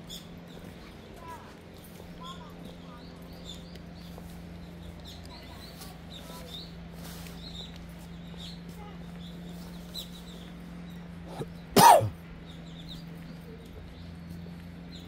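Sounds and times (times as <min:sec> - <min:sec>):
person coughing: 0:11.3 - 0:12.2.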